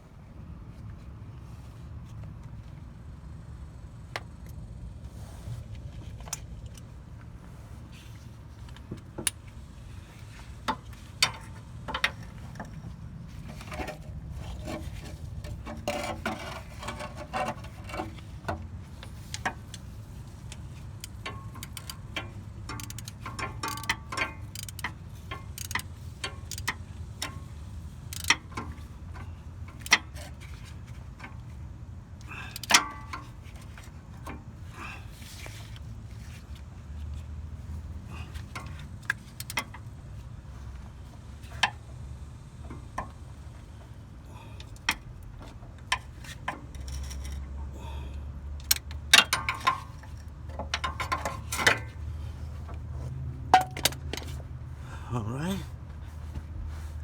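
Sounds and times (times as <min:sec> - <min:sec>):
hand ratchet clicking: 0:20.5 - 0:27.3, 0:28.0 - 0:28.4.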